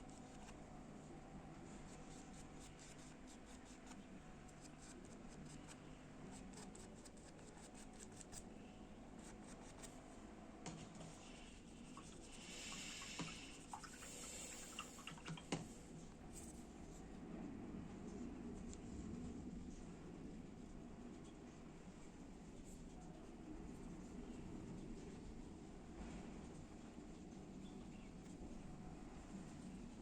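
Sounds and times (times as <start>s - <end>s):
paintbrush scratching and dabbing: 1.5s - 8.4s, 9.2s - 10.0s, 10.7s - 15.1s.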